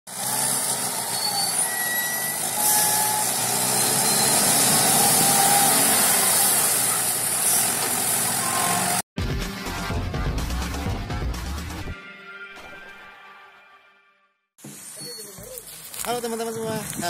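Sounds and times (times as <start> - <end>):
loader engine running: 0.1 - 9.0.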